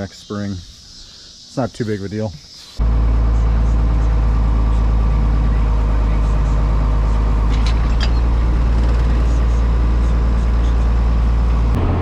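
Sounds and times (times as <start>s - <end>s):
tractor engine running: 2.8s - 12.0s.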